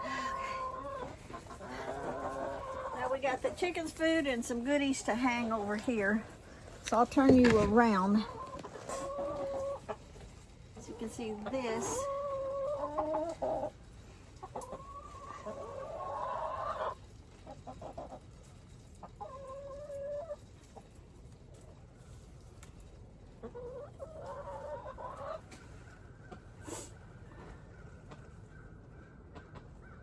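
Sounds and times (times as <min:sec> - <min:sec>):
drawn-out chicken calls: 0:00.0 - 0:03.6, 0:07.9 - 0:18.3, 0:19.0 - 0:20.9, 0:23.4 - 0:30.0
chickens clucking: 0:00.0 - 0:06.5, 0:07.4 - 0:20.9, 0:23.2 - 0:30.0.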